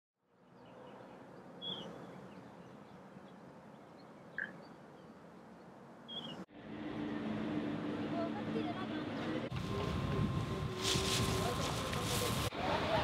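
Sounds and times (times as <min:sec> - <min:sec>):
faint outdoor background noise: 0:00.2 - 0:13.0
bird chirps: 0:00.4 - 0:06.5.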